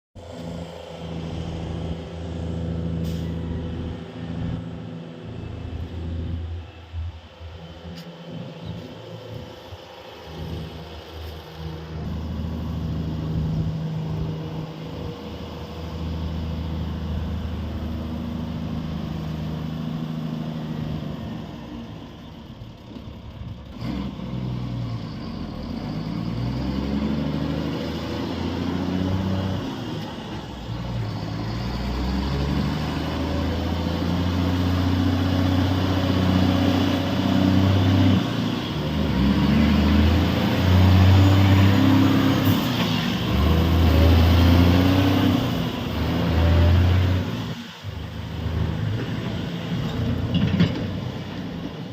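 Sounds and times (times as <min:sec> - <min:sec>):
truck diesel engine running: 0:00.2 - 0:23.8.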